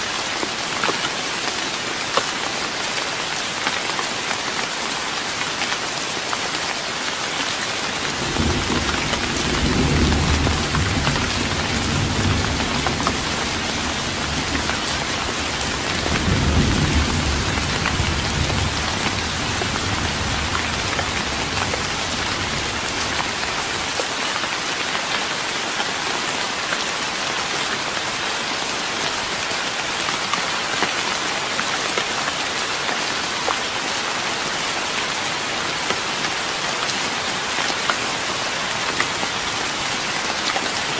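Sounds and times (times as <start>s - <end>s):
rain pattering on wooden deck: 0.0s - 40.9s
thunder rumbling: 8.2s - 23.2s.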